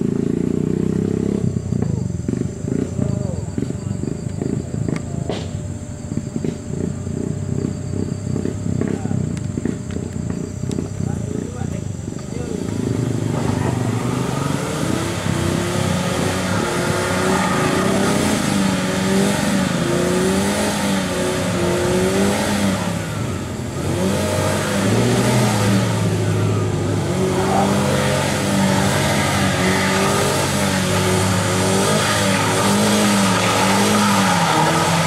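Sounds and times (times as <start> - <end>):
car engine revving hard: 12.5 - 35.0
wheels churning through mud: 12.6 - 35.0.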